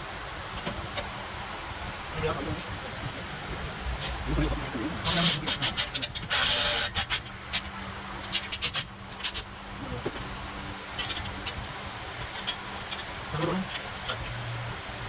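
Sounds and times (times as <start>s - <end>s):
faint steady hum: 0.0s - 15.0s
air hissing: 5.0s - 7.7s.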